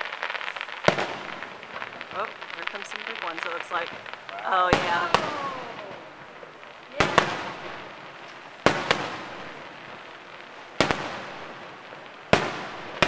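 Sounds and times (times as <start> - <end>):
firework shells bursting: 0.0 - 13.0.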